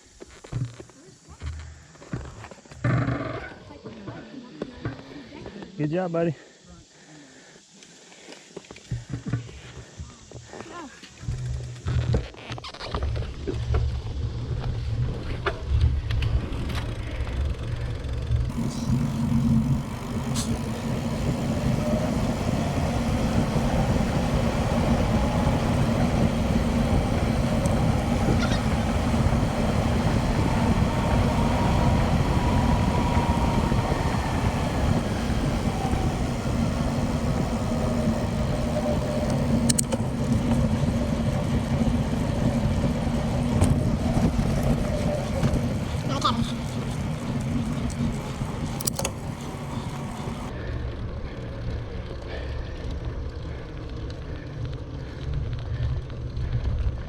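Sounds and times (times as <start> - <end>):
wind rush on microphone: 18.5 - 50.5.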